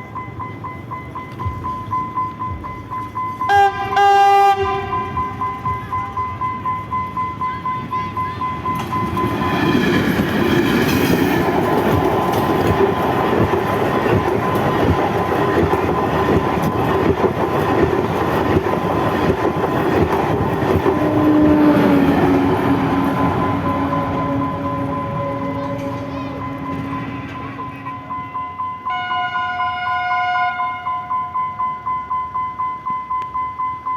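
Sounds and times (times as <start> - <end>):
wheel-on-rail rush: 4.6 - 28.9
train wheels clattering over rail joints: 8.7 - 27.5.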